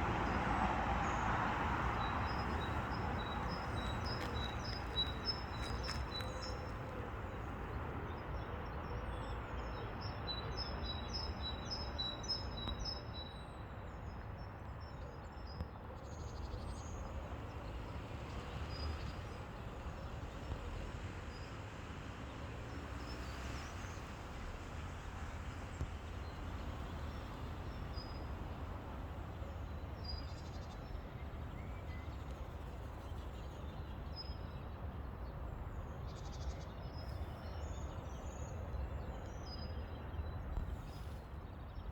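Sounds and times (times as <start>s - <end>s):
small birds chirping: 1.0s - 7.7s.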